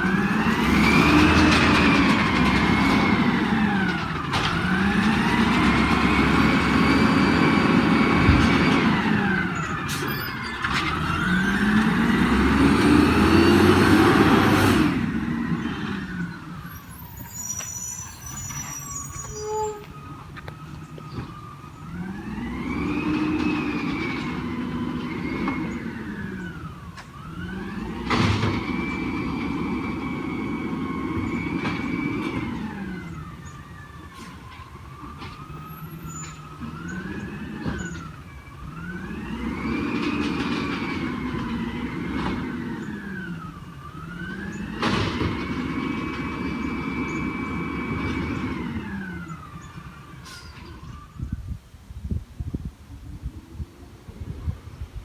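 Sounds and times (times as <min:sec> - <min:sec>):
garbage truck engine revving: 0:00.0 - 0:19.3, 0:19.9 - 0:51.0
hydraulic pump whine: 0:00.0 - 0:34.3.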